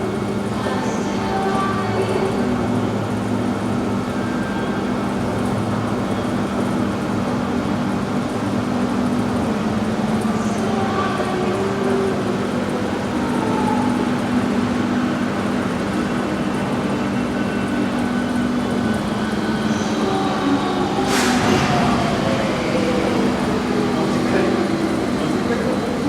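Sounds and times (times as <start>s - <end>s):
metro train running: 0.0s - 26.0s.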